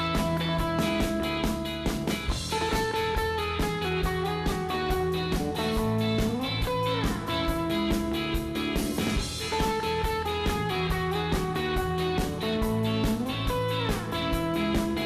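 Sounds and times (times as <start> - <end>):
electric guitars playing: 0.0 - 15.0
steady drum beat: 0.0 - 15.0.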